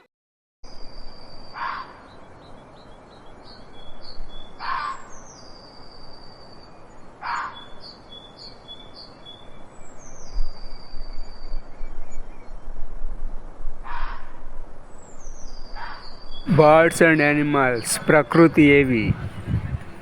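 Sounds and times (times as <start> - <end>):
harsh low bird calls: 3.4 - 9.5, 13.8 - 14.4, 15.2 - 20.0
background hiss: 16.5 - 20.0.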